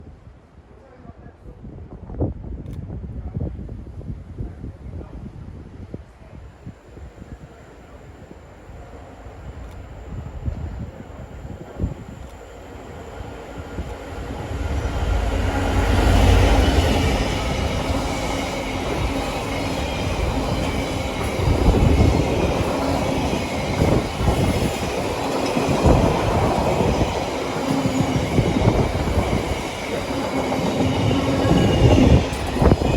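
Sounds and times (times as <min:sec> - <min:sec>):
diesel locomotive engine rumbling: 0:06.3 - 0:32.9.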